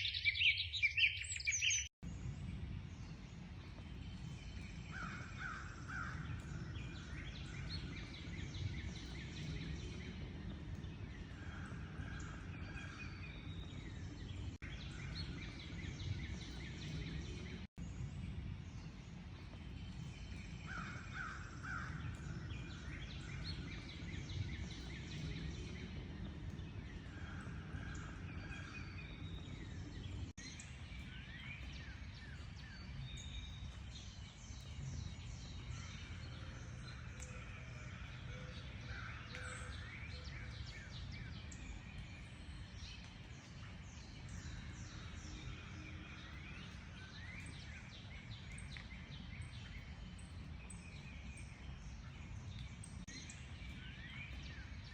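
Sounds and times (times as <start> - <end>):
birds chirping and trilling: 0.0 - 1.9, 19.6 - 54.9.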